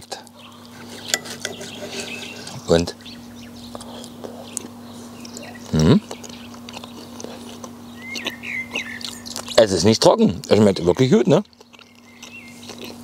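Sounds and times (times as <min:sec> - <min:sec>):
bird chirping: 0:00.4 - 0:09.6, 0:10.7 - 0:12.9
person chewing: 0:03.7 - 0:09.7, 0:11.4 - 0:13.0.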